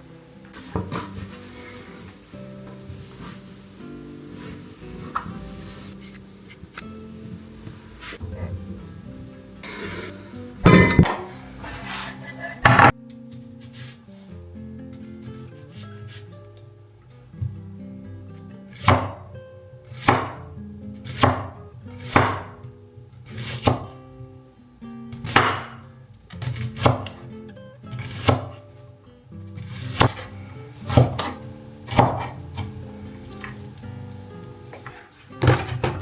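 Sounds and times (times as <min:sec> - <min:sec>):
soft background music: 0:00.0 - 0:36.0
knife chopping on cutting board: 0:00.6 - 0:01.8, 0:10.7 - 0:12.0, 0:12.6 - 0:12.9, 0:18.7 - 0:19.3, 0:20.0 - 0:20.4, 0:21.0 - 0:22.6, 0:23.3 - 0:24.0, 0:25.1 - 0:25.8, 0:26.4 - 0:27.2, 0:28.0 - 0:28.6, 0:29.6 - 0:32.8, 0:34.7 - 0:36.0.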